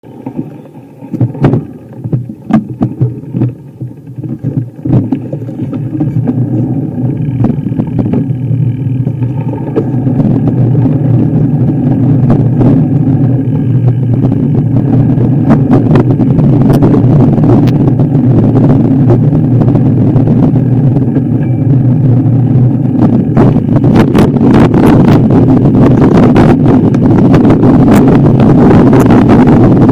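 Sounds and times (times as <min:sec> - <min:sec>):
off-road vehicle engine running: 0:00.0 - 0:29.9
knocks and clatters: 0:00.2 - 0:10.0.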